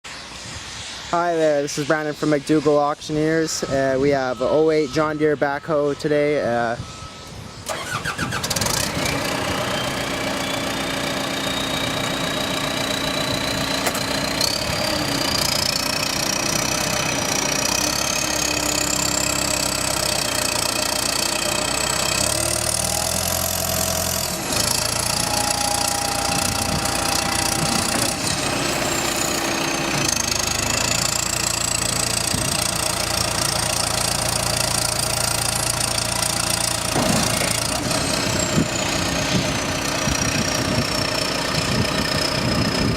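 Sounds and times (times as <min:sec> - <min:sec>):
diesel engine running: 0:03.2 - 0:42.9
high whistle: 0:03.6 - 0:07.7, 0:24.5 - 0:29.8.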